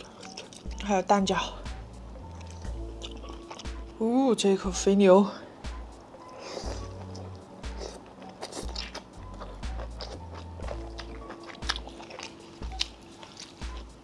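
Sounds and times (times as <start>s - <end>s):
person chewing food: 0.0s - 0.8s, 2.1s - 4.0s, 5.8s - 14.0s
background music with bass: 0.7s - 4.0s, 8.7s - 12.0s.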